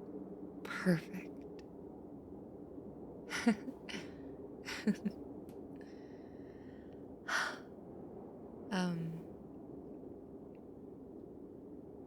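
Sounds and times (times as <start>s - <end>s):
low background hum: 0.0s - 12.0s
woman's short wordless sounds: 0.7s - 1.2s, 3.3s - 4.0s, 4.7s - 5.1s, 8.7s - 9.2s
woman breathing softly: 5.8s - 7.6s.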